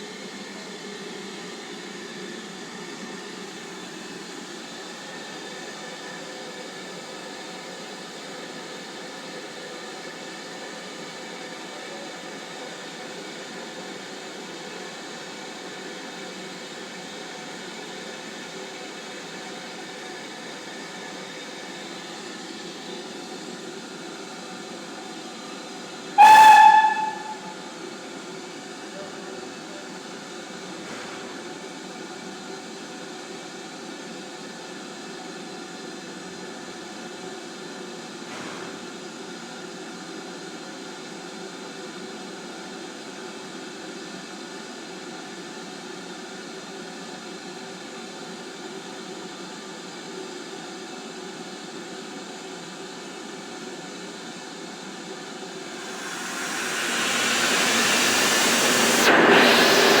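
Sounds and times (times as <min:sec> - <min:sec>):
loud rush of escaping steam: 0:26.2 - 0:27.6, 0:55.6 - 1:00.0
steam locomotive hiss and hum: 0:26.2 - 0:27.7, 0:55.6 - 1:00.0.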